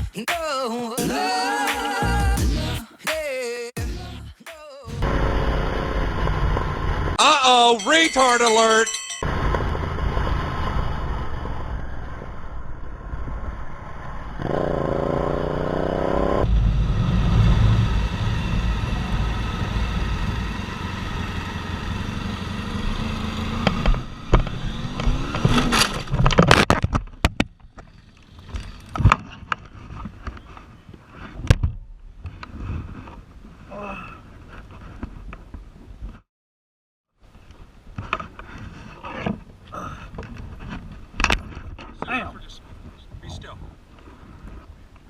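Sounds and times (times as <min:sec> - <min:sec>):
motorcycle engine revving: 0:14.1 - 0:26.2.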